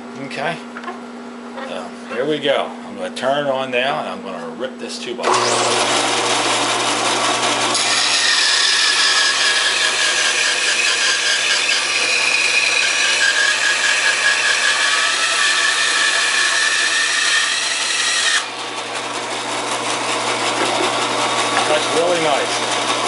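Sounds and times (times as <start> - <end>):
bandsaw cutting wood: 5.2 - 23.0.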